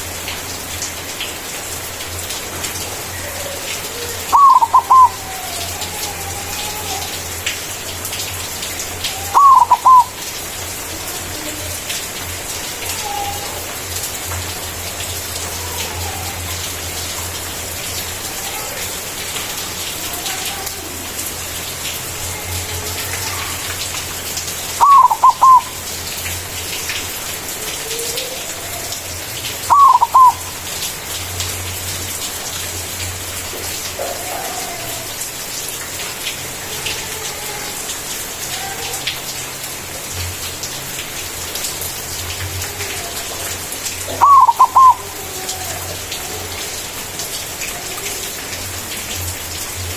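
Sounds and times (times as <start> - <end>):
dove cooing: 3.2 - 7.1, 9.3 - 10.2, 24.8 - 25.8, 29.7 - 30.5, 44.1 - 45.9.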